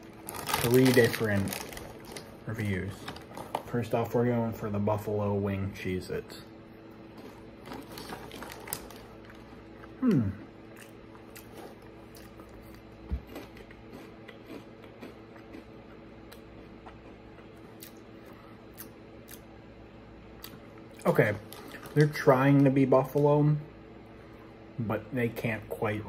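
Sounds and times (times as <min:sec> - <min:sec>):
crackers being chewed: 0:00.0 - 0:03.7, 0:07.0 - 0:19.5, 0:20.4 - 0:23.2
faint steady hum: 0:00.0 - 0:26.0.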